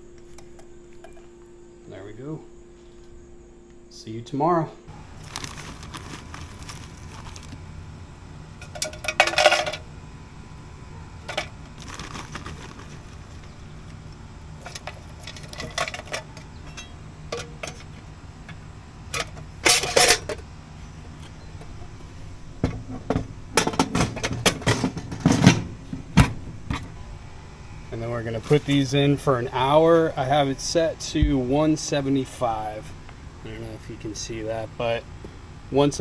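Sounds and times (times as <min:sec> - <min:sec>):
steady low hum: 0:00.0 - 0:36.0
metal pans clinking and clattering: 0:08.6 - 0:09.8, 0:14.6 - 0:18.0, 0:19.2 - 0:20.4, 0:22.6 - 0:26.8.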